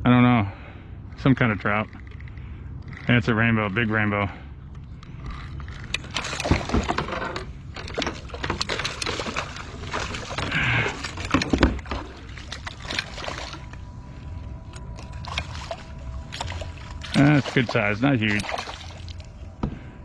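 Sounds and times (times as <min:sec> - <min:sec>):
water splashing and sloshing: 0:01.3 - 0:20.0
knocks and rustles: 0:05.3 - 0:13.4.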